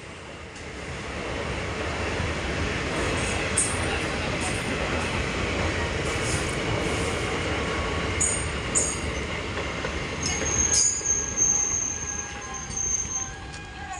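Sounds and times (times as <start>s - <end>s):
train wheels rumbling over rails: 0.0s - 13.9s
high-pitched wheel squeal: 10.2s - 13.4s.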